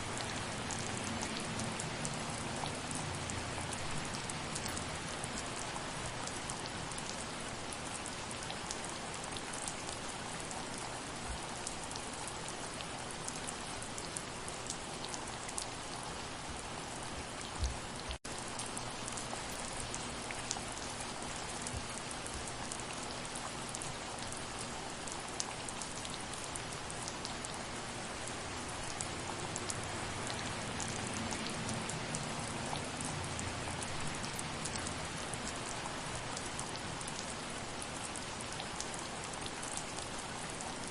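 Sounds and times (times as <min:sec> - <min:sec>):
soft rain: 0:00.0 - 0:40.9.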